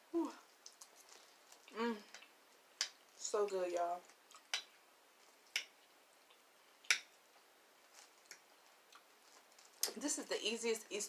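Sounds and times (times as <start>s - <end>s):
eating clicks and smacks: 0.6s - 3.1s, 4.1s - 4.8s, 5.4s - 7.2s.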